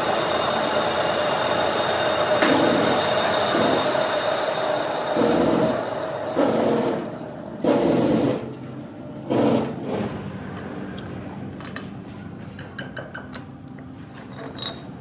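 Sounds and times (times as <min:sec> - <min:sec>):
power tool working metal: 0:00.0 - 0:08.6.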